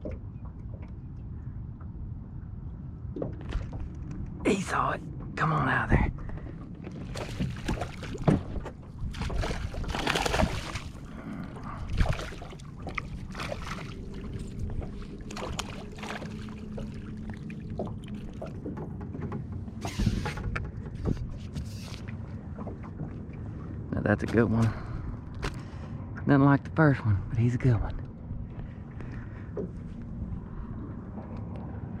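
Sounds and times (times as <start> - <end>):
knocks in a boat: 5.2 - 10.4, 17.8 - 21.5
water splashing: 6.3 - 18.8.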